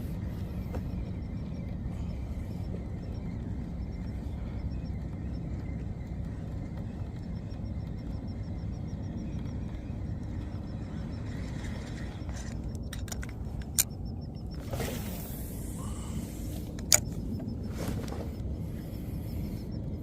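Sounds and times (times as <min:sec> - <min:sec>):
low rumbling noise: 0:00.0 - 0:20.0
sharp clicks: 0:02.6 - 0:14.6, 0:16.5 - 0:17.7.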